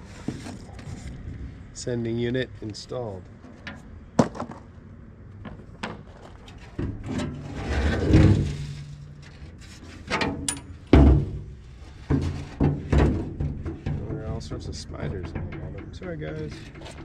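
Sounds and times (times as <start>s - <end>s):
metal parts clunking and scraping: 3.4s - 4.7s, 5.4s - 17.0s
heavy thud: 10.8s - 15.8s.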